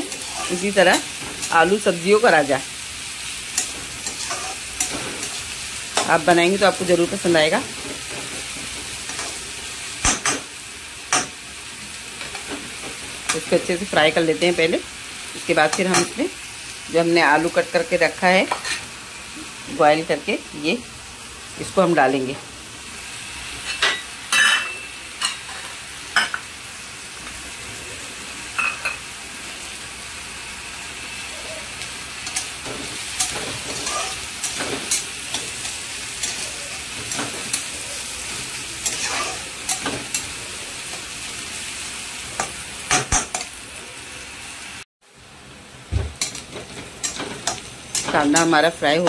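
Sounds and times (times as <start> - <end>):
food sizzling in hot oil: 0.0 - 49.0
utensil stirring against a pan: 31.4 - 41.1.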